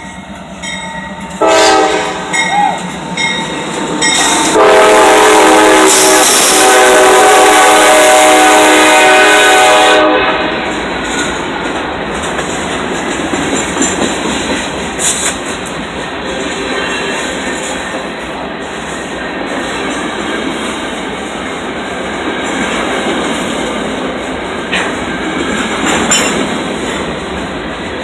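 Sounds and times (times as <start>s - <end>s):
train rumbling: 0.0s - 28.0s
locomotive air horn: 1.4s - 2.9s, 4.2s - 10.7s
wheels clattering over rails: 10.6s - 20.8s, 22.1s - 28.0s.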